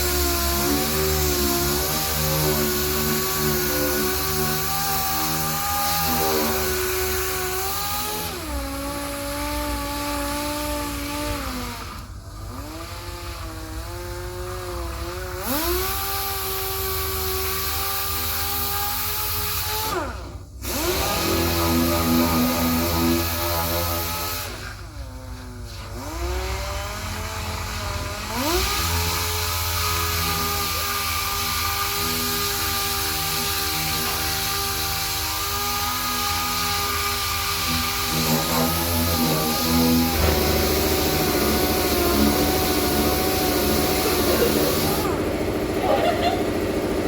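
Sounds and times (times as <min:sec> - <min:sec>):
power sander running: 0:00.0 - 0:47.0
motor humming: 0:35.6 - 0:47.0.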